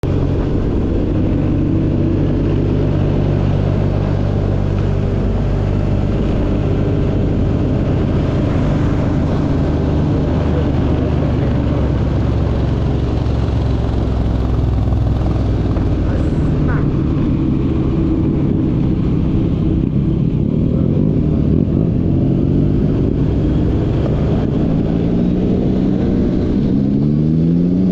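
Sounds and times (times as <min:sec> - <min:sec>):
vehicle engine humming: 0:00.0 - 0:27.9.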